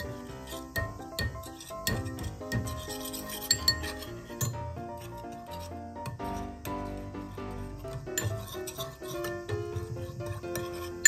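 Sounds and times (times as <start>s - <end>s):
spoon clinking against bowl: 0.0s - 4.6s
background music: 0.0s - 11.0s
metal spoon stirring in ceramic bowl: 0.0s - 11.0s.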